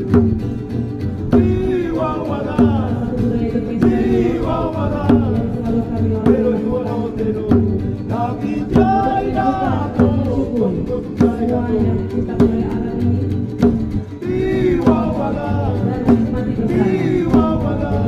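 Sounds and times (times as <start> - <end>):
percussive beat: 0.0 - 18.0
voices singing a chant: 0.0 - 18.0.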